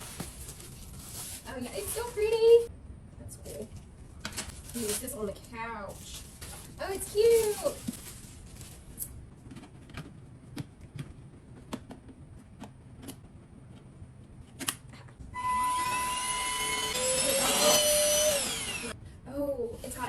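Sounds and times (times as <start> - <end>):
vacuum cleaner motor whining: 15.4 - 19.0.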